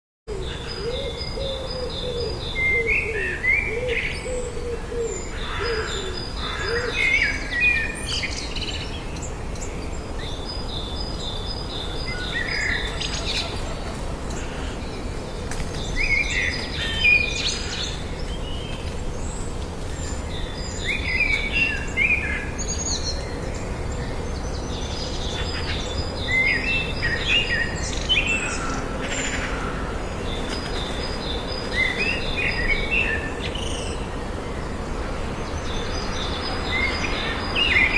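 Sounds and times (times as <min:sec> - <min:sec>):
birds singing and calling: 0:00.3 - 0:37.9
low wavering bird calls: 0:11.9 - 0:15.2.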